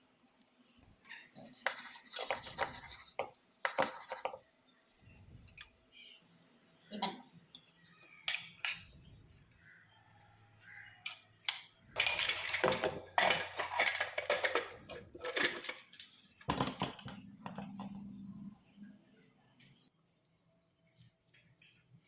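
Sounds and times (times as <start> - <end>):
metal utensils and pots clattering: 1.0 - 4.4, 11.0 - 18.2.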